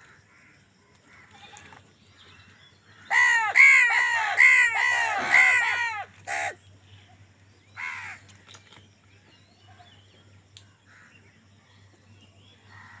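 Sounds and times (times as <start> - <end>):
birds chirping: 0.8 - 13.0
crow cawing: 2.9 - 6.6, 7.8 - 8.2.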